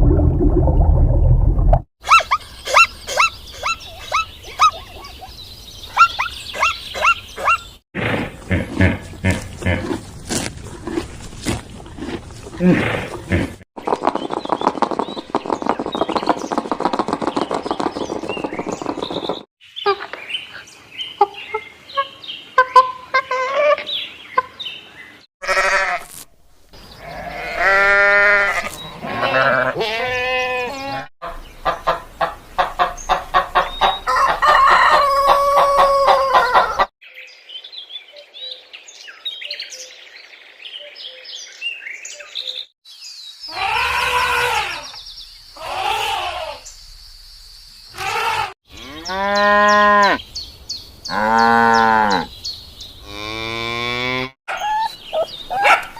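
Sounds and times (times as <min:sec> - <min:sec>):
hens clucking: 0:31.2 - 0:36.9
roosters crowing: 0:33.6 - 0:36.9, 0:43.5 - 0:44.9, 0:48.0 - 0:50.2, 0:51.1 - 0:52.3.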